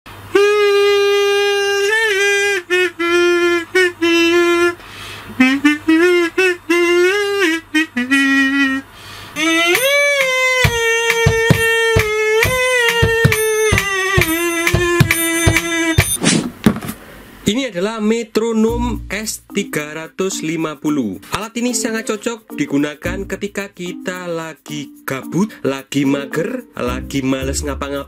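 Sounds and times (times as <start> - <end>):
kazoo buzzing a melody: 0.1 - 16.2.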